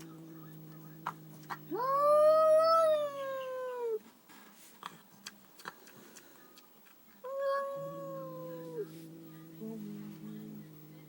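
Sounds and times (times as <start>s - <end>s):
cat long drawn-out call: 0.0s - 4.0s, 7.3s - 10.9s.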